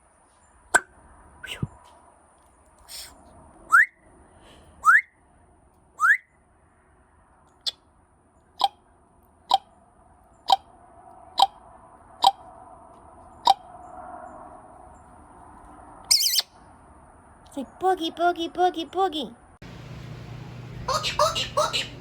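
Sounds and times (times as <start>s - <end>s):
parrot whistling: 3.7s - 4.0s, 4.8s - 5.1s, 6.0s - 6.3s, 16.1s - 16.5s, 20.8s - 22.0s.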